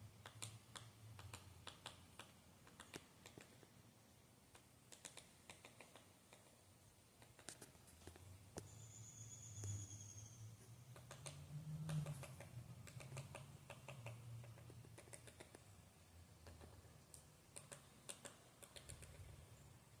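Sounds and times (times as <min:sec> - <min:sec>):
faint clicks and ticks: 0:00.2 - 0:03.8, 0:04.5 - 0:06.6, 0:10.6 - 0:15.8, 0:16.4 - 0:19.5
thin high whistle: 0:08.7 - 0:10.5.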